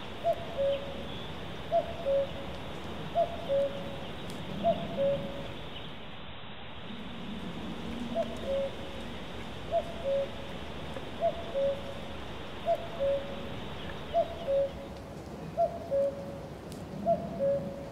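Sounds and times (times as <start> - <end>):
steady outdoor hiss: 0.0 - 17.9.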